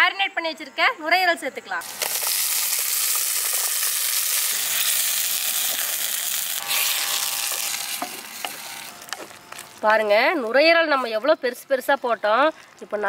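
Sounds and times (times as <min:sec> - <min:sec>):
meat sizzling in a pot: 0:01.8 - 0:09.6
spatula stirring: 0:02.0 - 0:09.7.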